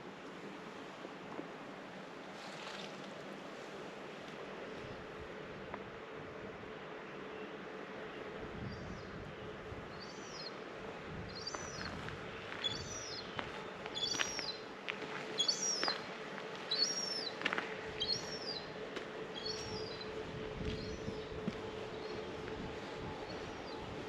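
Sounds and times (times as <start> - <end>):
steady low hum: 0.0 - 24.0
bird calling: 11.4 - 14.7, 15.3 - 20.2.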